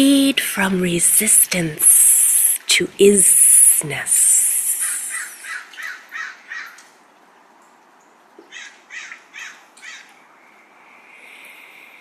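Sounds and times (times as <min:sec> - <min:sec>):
bird calling: 0:04.5 - 0:06.8.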